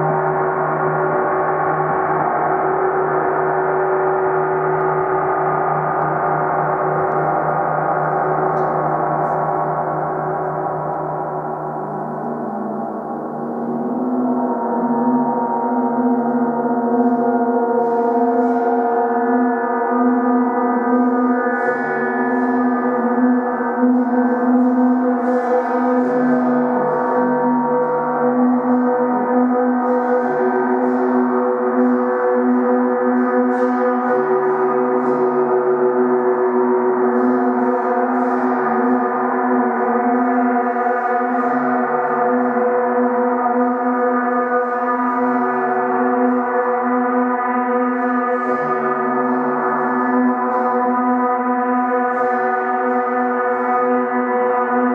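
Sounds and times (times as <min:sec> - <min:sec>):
gong ringing with overtones: 0:12.0 - 0:20.9.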